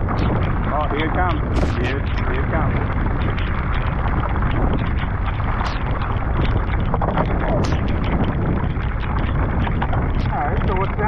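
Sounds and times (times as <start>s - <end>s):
heavy rain on water: 0.0s - 11.0s
wind buffeting microphone: 0.0s - 11.0s.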